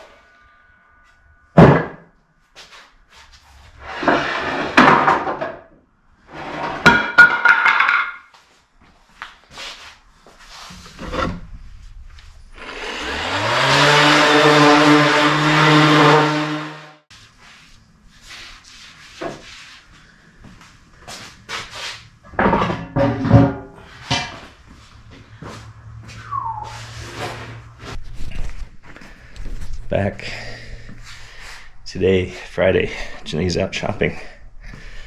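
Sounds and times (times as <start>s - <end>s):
boards scraping and rattling: 3.8s - 5.6s, 6.3s - 8.1s, 10.7s - 11.6s
power tool motor running: 12.6s - 17.0s.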